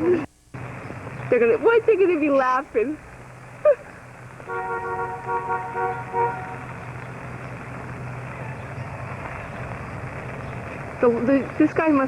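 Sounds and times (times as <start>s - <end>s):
vehicle engine humming: 0.0s - 12.0s
two-tone car horn honking: 4.4s - 6.9s.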